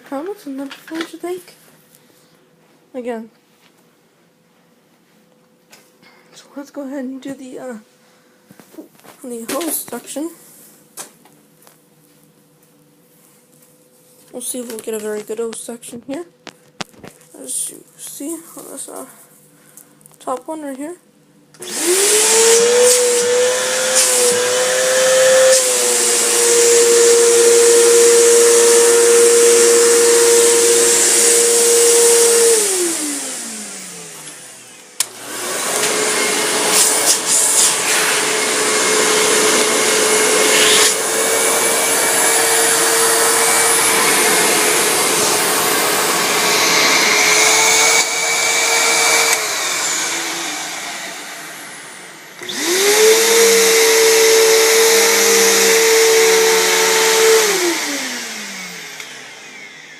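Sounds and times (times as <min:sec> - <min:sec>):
vacuum cleaner motor whining: 0:21.6 - 0:59.9
vacuum cleaner winding down: 0:21.6 - 0:59.9.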